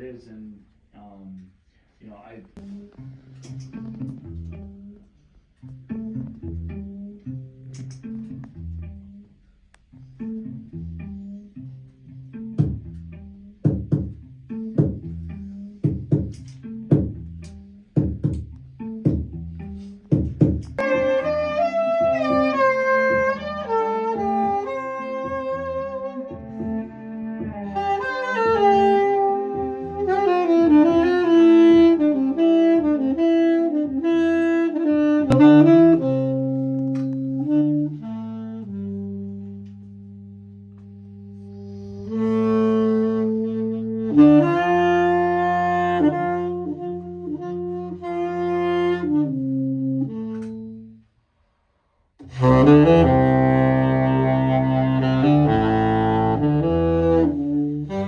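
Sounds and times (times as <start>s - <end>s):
saxophone melody: 2.6s - 51.4s, 52.2s - 58.0s
cello low held notes: 20.8s - 32.0s.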